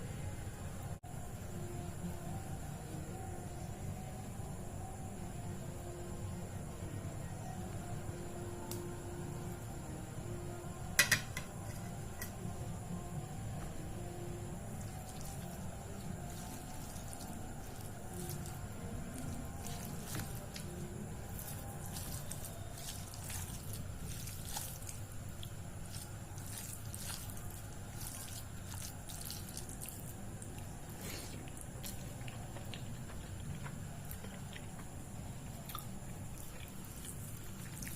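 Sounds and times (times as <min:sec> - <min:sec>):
wet squishing of soft food: 0:14.8 - 0:37.9.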